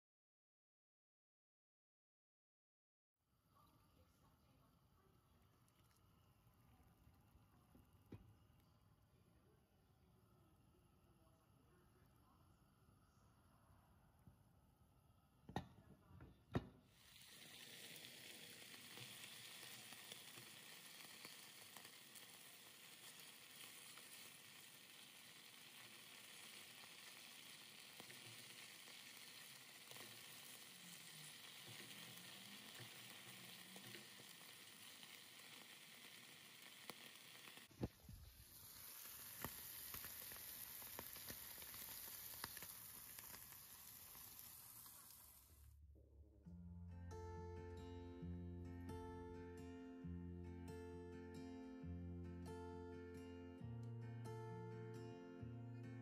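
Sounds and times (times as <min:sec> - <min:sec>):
cheese sizzling in pan: 0:16.9 - 0:45.7.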